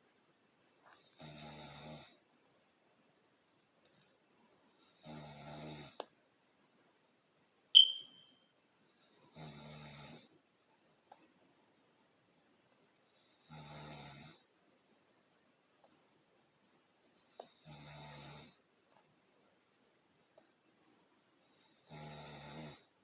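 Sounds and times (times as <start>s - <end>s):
short high ping: 7.8s - 8.3s.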